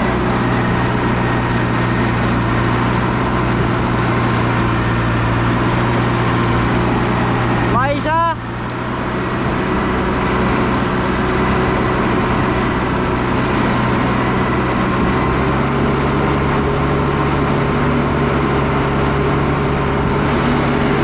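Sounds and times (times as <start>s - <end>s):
high electronic beep: 0.0s - 4.0s, 14.3s - 20.6s
diesel truck engine running: 0.0s - 21.0s.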